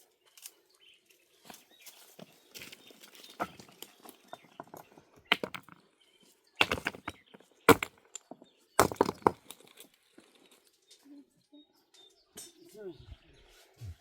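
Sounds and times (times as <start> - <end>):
sharp knocks and cracks: 2.5 - 5.9, 6.6 - 10.3.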